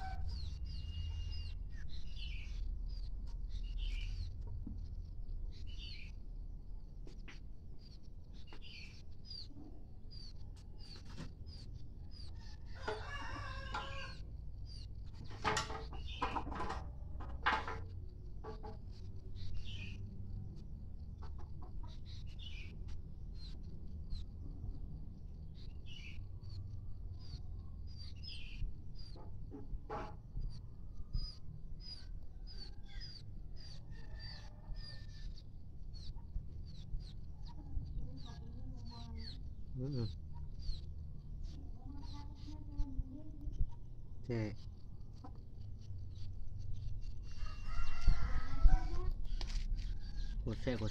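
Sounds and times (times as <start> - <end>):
chicks peeping: 0.0 - 6.1, 7.8 - 16.7, 18.2 - 50.9
low background rumble: 0.0 - 50.9
chickens clucking: 10.9 - 24.8, 44.3 - 50.9
rooster crowing: 12.4 - 14.2, 33.8 - 35.2, 47.3 - 49.1.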